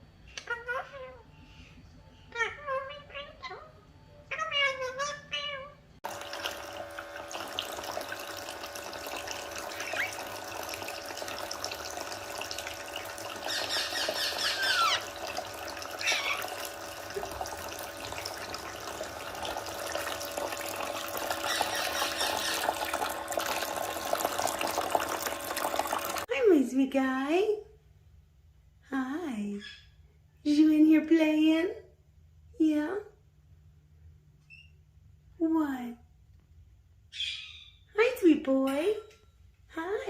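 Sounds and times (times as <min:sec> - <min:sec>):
parrot chattering and whistling: 0:02.2 - 0:05.8, 0:09.7 - 0:10.2, 0:13.5 - 0:15.2, 0:16.0 - 0:16.6, 0:21.4 - 0:22.7, 0:29.6 - 0:30.0, 0:37.1 - 0:37.9
tap water running into sink: 0:06.0 - 0:26.3.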